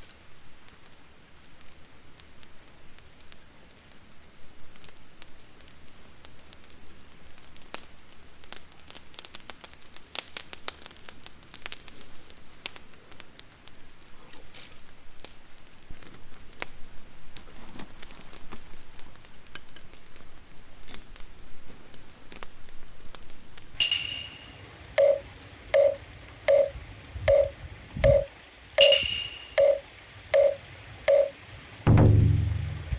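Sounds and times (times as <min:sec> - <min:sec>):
campfire crackling and popping: 0:00.1 - 0:14.3, 0:15.1 - 0:23.8, 0:24.4 - 0:32.9
electronic beeping jingle: 0:23.8 - 0:31.4.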